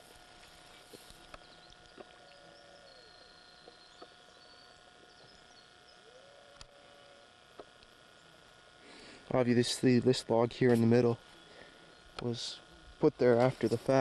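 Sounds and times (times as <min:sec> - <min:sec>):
faint marsh ambience: 0:00.0 - 0:14.0
faint drawn-out calls: 0:00.6 - 0:09.2.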